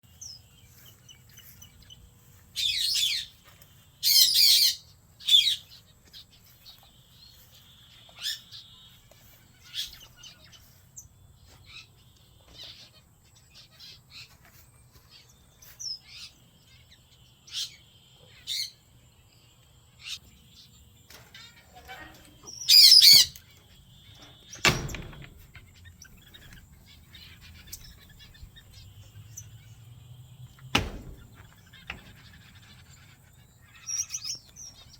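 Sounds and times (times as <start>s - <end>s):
finches chirping: 0.1s - 18.9s, 20.0s - 34.9s
thump: 30.7s - 32.3s.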